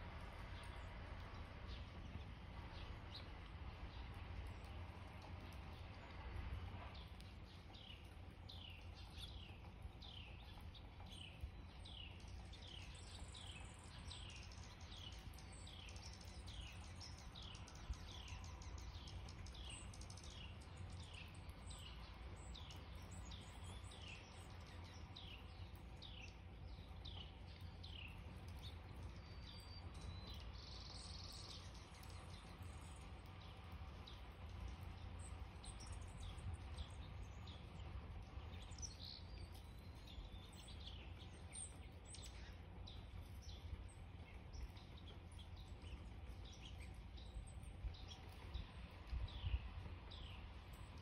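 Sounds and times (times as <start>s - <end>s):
steady low rumble: 0.0s - 51.0s.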